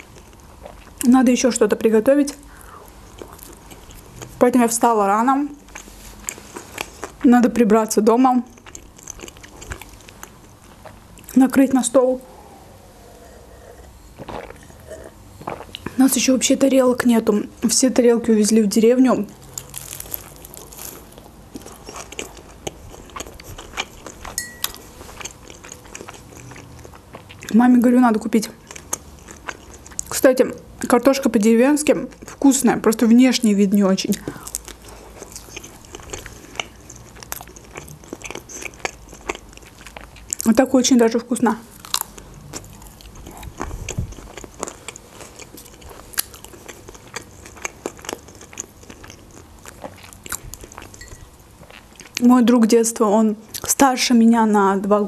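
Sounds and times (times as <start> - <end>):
close chewing: 2.6 - 4.4, 5.6 - 7.4, 8.4 - 11.4, 19.3 - 27.6, 28.5 - 30.2, 34.0 - 40.6, 41.7 - 52.2.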